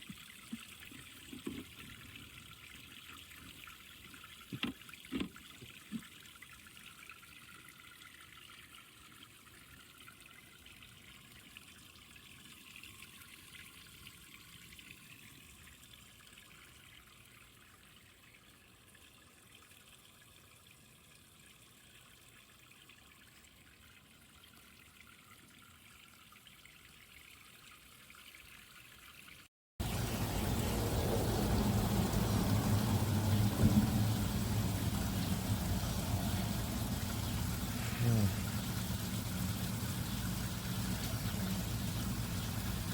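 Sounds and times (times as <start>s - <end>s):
fountain water trickling: 0.0s - 42.9s
loud steady noise with low hum: 29.8s - 42.9s.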